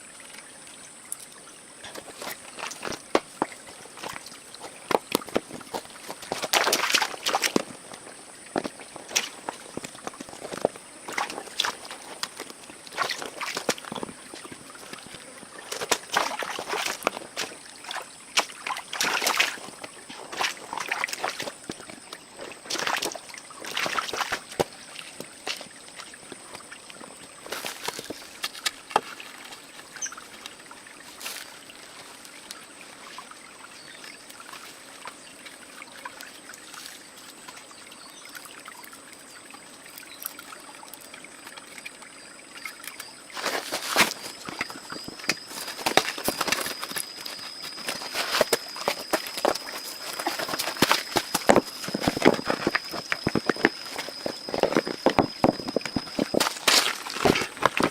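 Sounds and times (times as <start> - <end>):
water splashes: 0.0 - 57.9
water trickling and sloshing: 0.0 - 57.9
handling clatter: 43.4 - 57.9.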